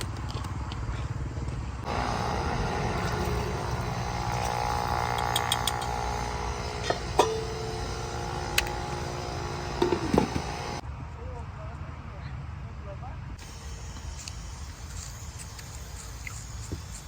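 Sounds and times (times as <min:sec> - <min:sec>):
engine humming steadily: 0:00.0 - 0:10.8
sharp clicks: 0:03.0 - 0:07.3.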